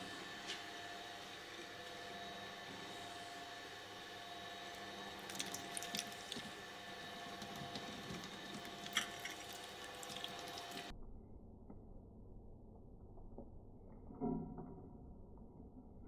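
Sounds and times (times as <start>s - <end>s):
electric shredder motor hum: 0.0s - 10.9s
wet crackles of slime: 5.2s - 6.6s, 7.4s - 10.9s.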